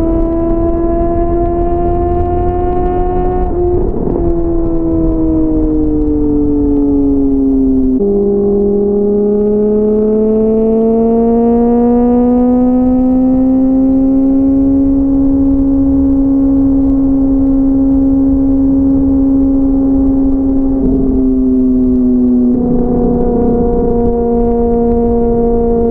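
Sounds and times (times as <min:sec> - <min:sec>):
motorcycle engine drone: 0:00.0 - 0:25.9
wind rumble on microphone: 0:00.0 - 0:25.9.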